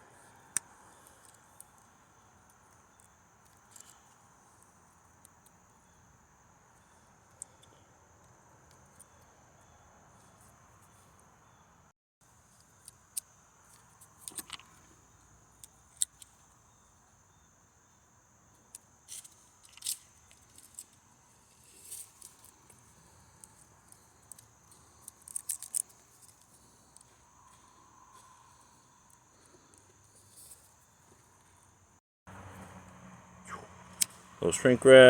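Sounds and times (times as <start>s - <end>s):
crickets chirring: 0.0s - 35.0s.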